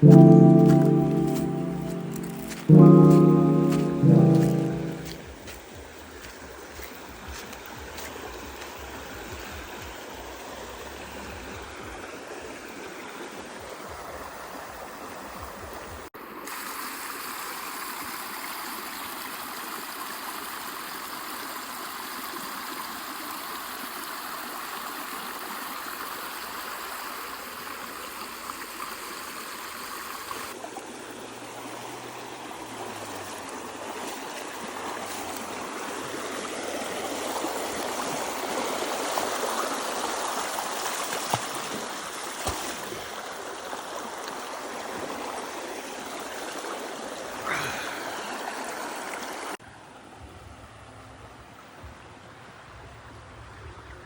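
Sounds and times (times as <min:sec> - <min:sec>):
stream water rushing: 0:00.0 - 0:05.3, 0:16.2 - 0:49.6.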